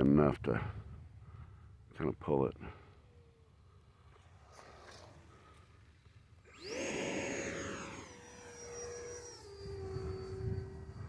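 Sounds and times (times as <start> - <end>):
electric ducted fan whine: 6.4 - 11.0.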